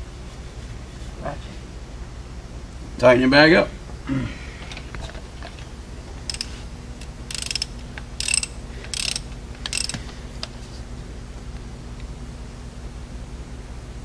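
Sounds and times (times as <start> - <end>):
ratchet wrench clicking: 6.2 - 10.0.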